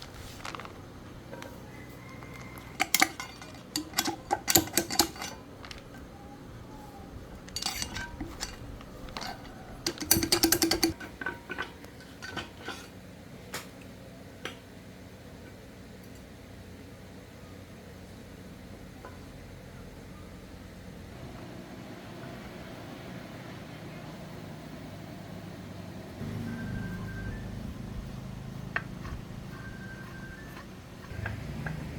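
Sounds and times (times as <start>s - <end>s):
metal tools clinking and clattering: 2.2s - 6.0s, 7.3s - 13.0s.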